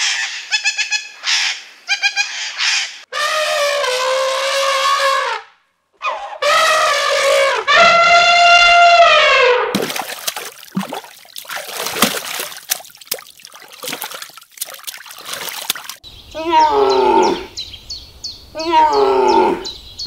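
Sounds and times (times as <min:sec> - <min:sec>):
elephant trumpeting: 0:06.0 - 0:09.7
fish splashing at water surface: 0:09.8 - 0:16.0.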